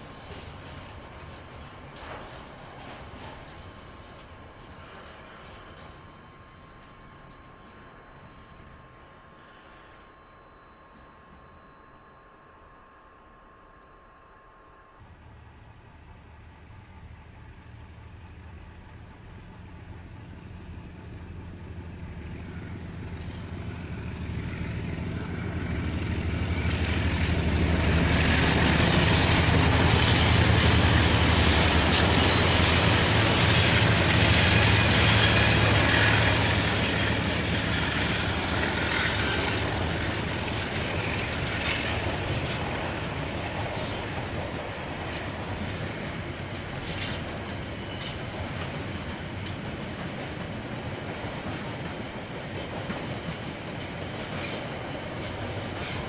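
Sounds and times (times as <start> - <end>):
diesel locomotive engine hum: 0.0 - 56.0
train rolling noise: 0.0 - 56.0
wagons clacking over rail joints: 0.1 - 6.0
high-pitched wheel squeal: 28.2 - 39.9, 45.0 - 48.2.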